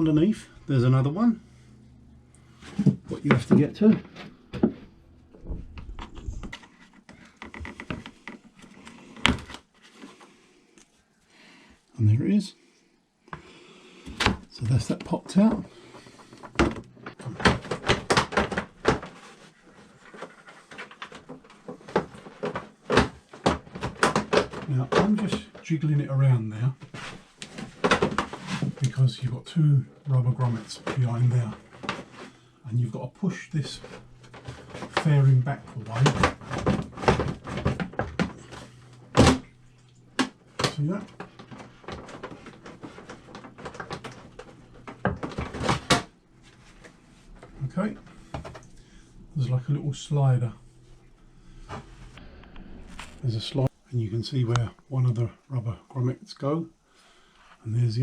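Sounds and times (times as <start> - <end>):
plastic panel rattling and creaking: 2.7 - 9.7, 14.1 - 25.9, 26.6 - 29.2, 30.1 - 32.9, 33.6 - 49.8
plastic fairing knocking and clicking: 5.4 - 9.6.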